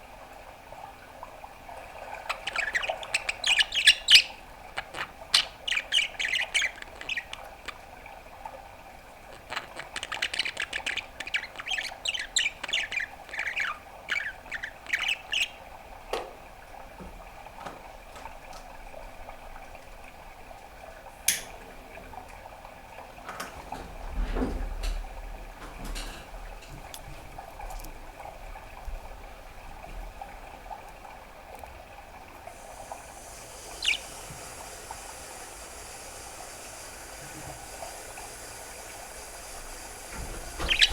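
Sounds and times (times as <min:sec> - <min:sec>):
budgerigar chirping: 0:02.3 - 0:07.4, 0:09.5 - 0:15.6, 0:33.4 - 0:34.8, 0:40.4 - 0:40.9
steady hiss: 0:22.7 - 0:30.8, 0:32.3 - 0:40.9.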